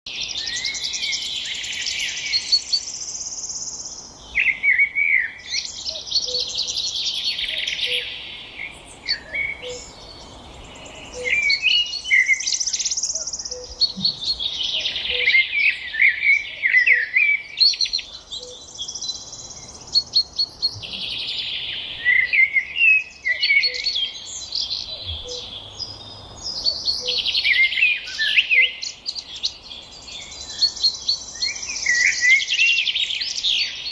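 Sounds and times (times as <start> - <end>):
songbirds chirping and twittering: 0.1 - 33.9.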